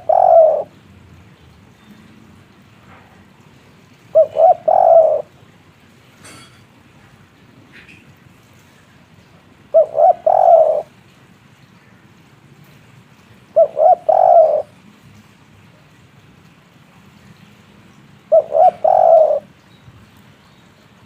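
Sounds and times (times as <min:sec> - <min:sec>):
dove cooing: 0:00.0 - 0:00.8, 0:04.1 - 0:05.4, 0:09.7 - 0:10.9, 0:13.5 - 0:14.8, 0:18.3 - 0:19.6.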